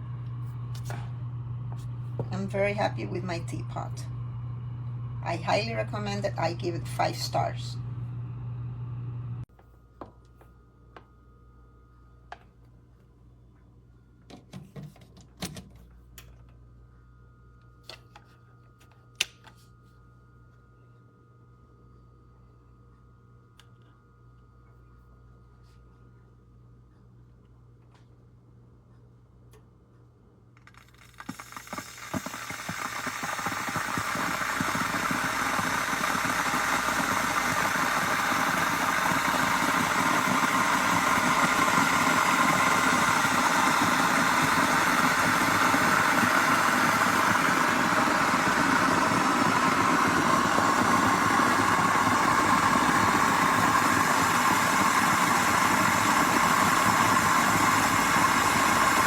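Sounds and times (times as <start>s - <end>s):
kettle water heating hiss: 31.0s - 59.0s.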